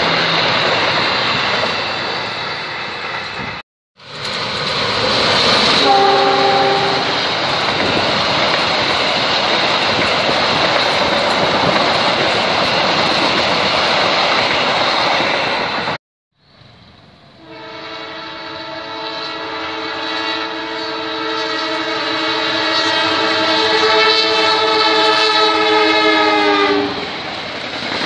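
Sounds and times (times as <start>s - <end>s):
train rushing past: 0.0s - 28.0s
distant train horn: 5.6s - 7.4s, 17.4s - 27.1s.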